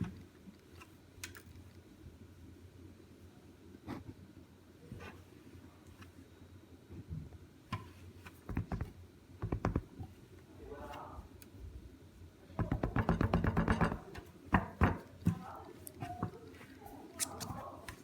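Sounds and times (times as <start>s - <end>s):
crafting materials clicking and tapping: 8.5s - 9.9s, 12.6s - 16.5s.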